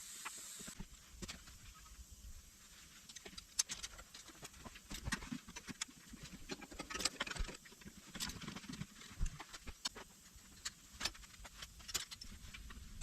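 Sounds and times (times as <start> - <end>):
hand tools and metal parts clinking: 3.0 - 13.0.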